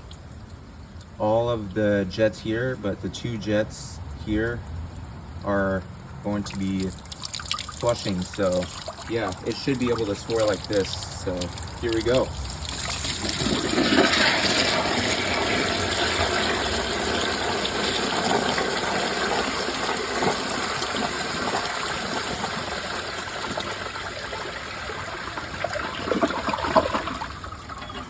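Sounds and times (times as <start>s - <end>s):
toilet flushing: 6.8s - 28.0s.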